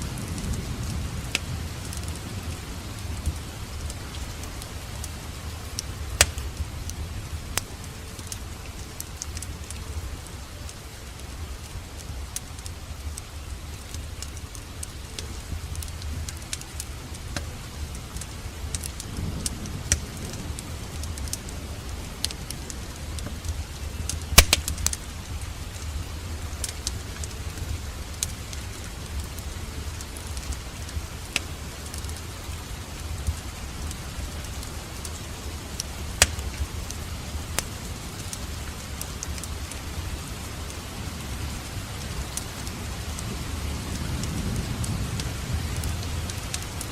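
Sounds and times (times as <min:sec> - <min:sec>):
wood fire crackling: 0:00.0 - 0:46.9
sharp pops of fire: 0:05.8 - 0:07.0, 0:18.2 - 0:20.3, 0:23.2 - 0:25.9, 0:35.8 - 0:37.0.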